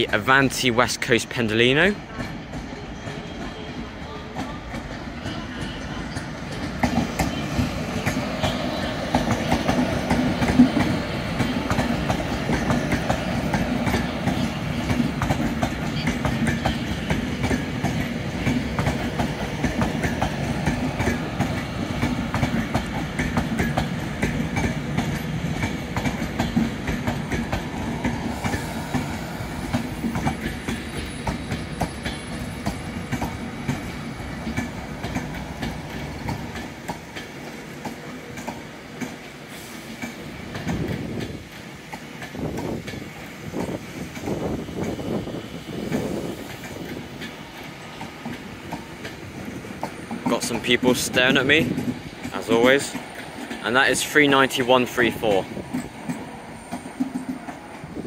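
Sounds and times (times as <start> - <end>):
electric train rolling past: 0.0 - 58.0
wheels clicking over track: 39.9 - 57.9.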